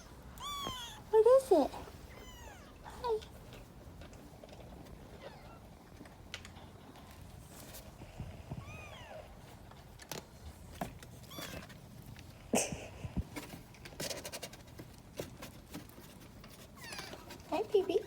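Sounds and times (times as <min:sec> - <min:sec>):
kitten mewing: 0:00.0 - 0:01.1, 0:02.1 - 0:03.2.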